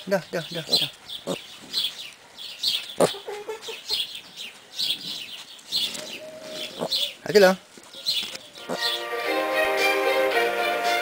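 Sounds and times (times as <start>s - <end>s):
bird chirping: 0.0s - 9.5s.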